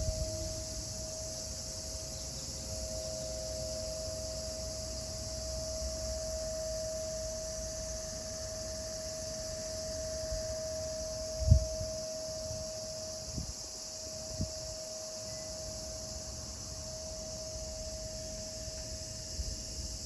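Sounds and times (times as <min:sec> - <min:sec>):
cicadas droning: 0:00.0 - 0:20.0.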